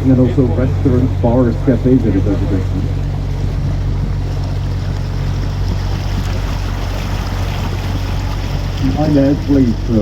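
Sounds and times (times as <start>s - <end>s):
boat motor droning: 0.0s - 10.0s
wind: 0.0s - 10.0s.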